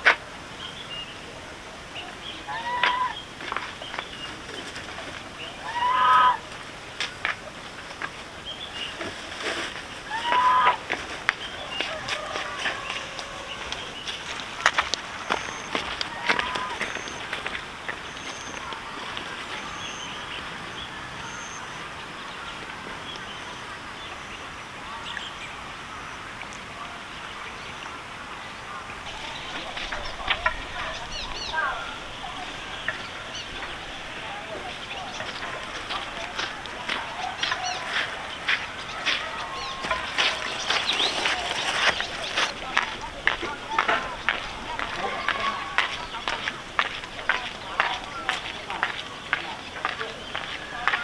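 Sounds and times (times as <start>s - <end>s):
farm animal calls: 2.0s - 3.4s, 4.2s - 6.6s, 10.0s - 22.0s, 29.1s - 51.0s.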